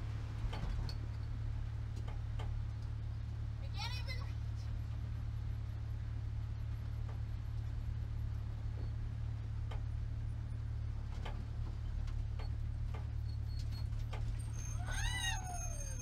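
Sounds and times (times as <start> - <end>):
race car engine idling: 0.0 - 14.6.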